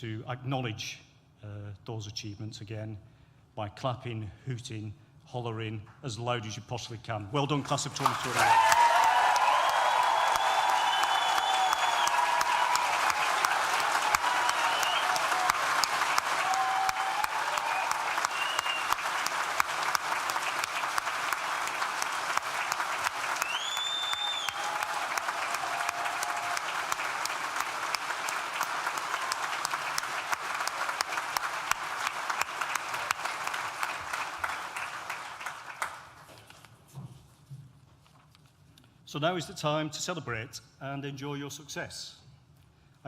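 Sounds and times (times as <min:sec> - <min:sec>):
audience applauding and cheering: 0:07.6 - 0:36.4
whoops: 0:08.4 - 0:19.0, 0:23.4 - 0:27.0.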